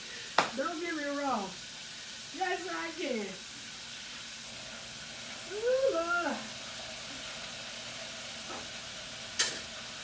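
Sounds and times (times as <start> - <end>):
chicken deep-frying in oil: 0.0 - 10.0.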